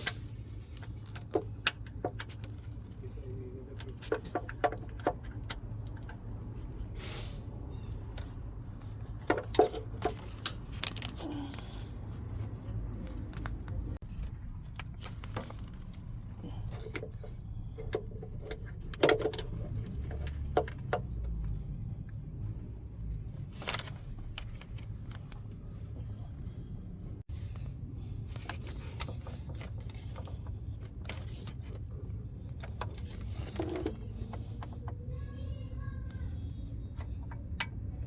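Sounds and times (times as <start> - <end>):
metal tools and engine parts clanking: 0.0 - 21.6, 28.3 - 34.9.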